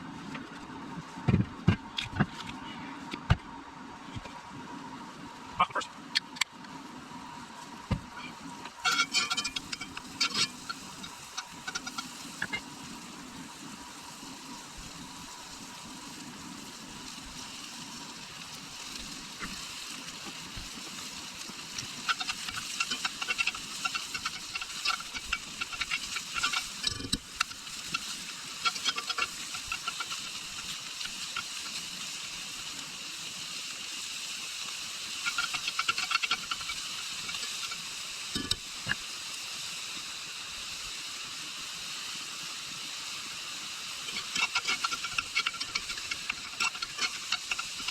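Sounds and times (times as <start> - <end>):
sausage sizzling in a pan: 7.0 - 47.9
stirring scrape in a pan: 8.2 - 12.6, 21.7 - 31.9, 35.2 - 38.6, 44.0 - 47.9.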